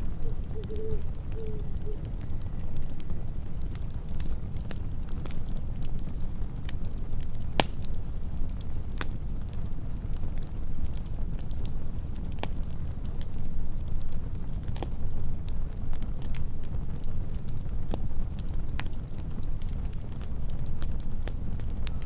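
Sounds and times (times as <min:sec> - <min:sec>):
cricket chirping: 0:00.0 - 0:02.8
campfire crackling and popping: 0:00.0 - 0:22.0.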